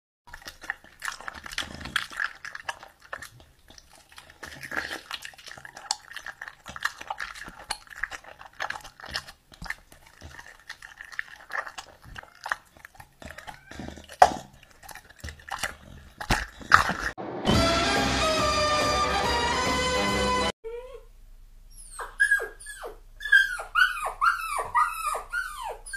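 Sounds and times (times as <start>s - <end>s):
dog eating from steel plate: 0.3s - 17.2s.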